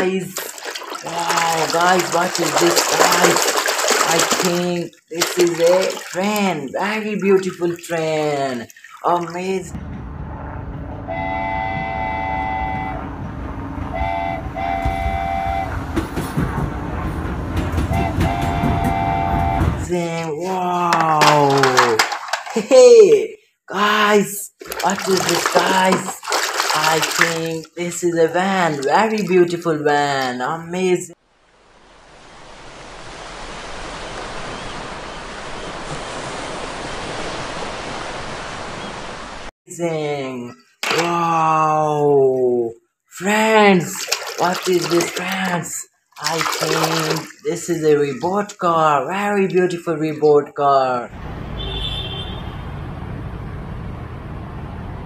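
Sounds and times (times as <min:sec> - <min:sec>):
train rumbling: 0:09.8 - 0:19.9
train horn blasts: 0:10.1 - 0:16.2, 0:17.7 - 0:19.8, 0:51.6 - 0:52.5
wheels clattering on rails: 0:14.8 - 0:19.8.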